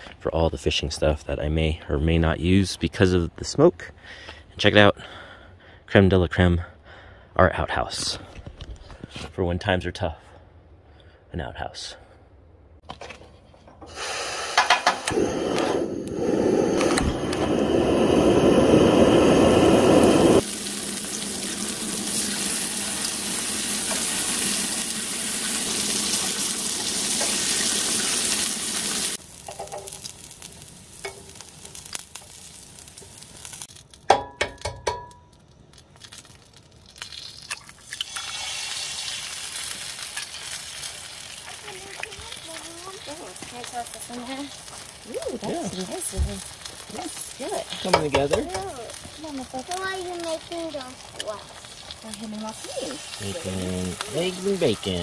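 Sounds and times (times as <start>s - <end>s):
egg sizzling on griddle: 13.8s - 55.0s
bacon sizzling on a griddle: 13.9s - 16.8s, 17.8s - 55.0s.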